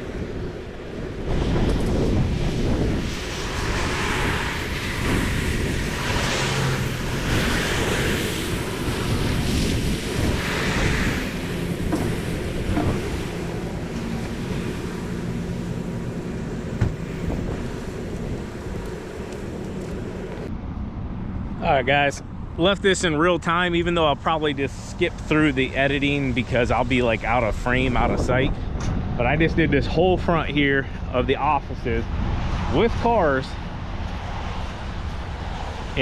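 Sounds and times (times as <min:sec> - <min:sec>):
engine running: 0:00.0 - 0:28.2
wind on microphone: 0:00.0 - 0:36.0.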